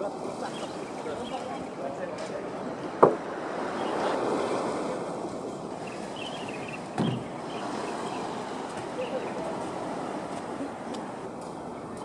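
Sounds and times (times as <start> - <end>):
water noise: 0.0 - 12.0
wind: 0.0 - 12.0
dull deep thump: 7.0 - 7.3.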